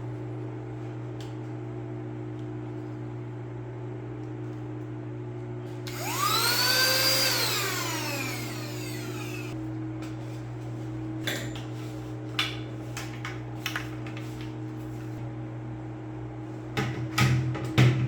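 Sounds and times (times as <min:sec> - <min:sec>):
vacuum cleaner motor spinning down: 0:05.9 - 0:09.6.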